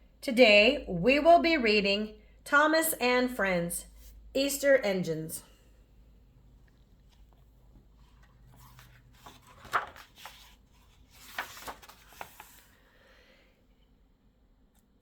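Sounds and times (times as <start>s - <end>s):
book rustling: 6.7s - 12.8s.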